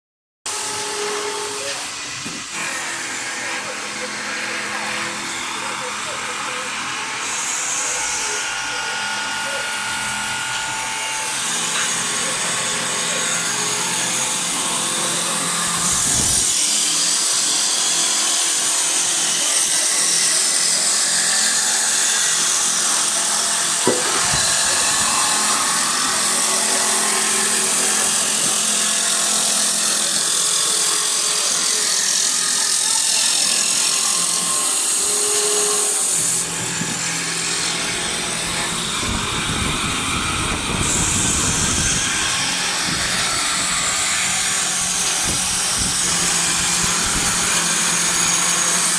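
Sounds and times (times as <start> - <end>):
wood lathe cutter shaving wood: 0.5 - 48.9
sharp knock: 23.8 - 24.5.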